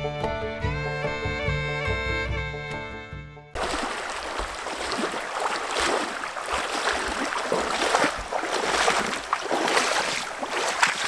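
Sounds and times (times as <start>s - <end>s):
stream water rushing: 3.6s - 11.0s.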